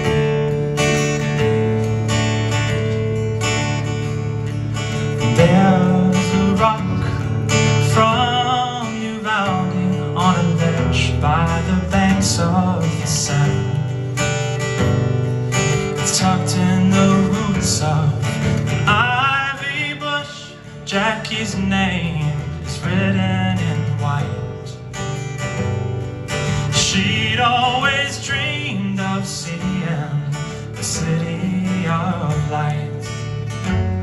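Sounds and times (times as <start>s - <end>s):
acoustic guitar strumming: 0.0s - 34.0s.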